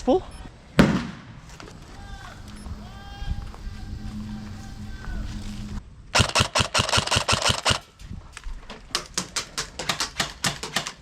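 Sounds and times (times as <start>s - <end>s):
airsoft guns firing: 0.8s - 1.4s, 6.2s - 7.9s.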